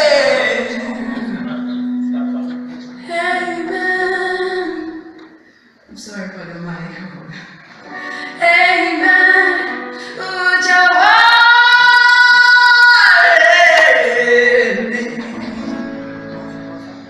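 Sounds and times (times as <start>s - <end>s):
high voice singing: 0.0s - 5.0s, 8.4s - 16.3s.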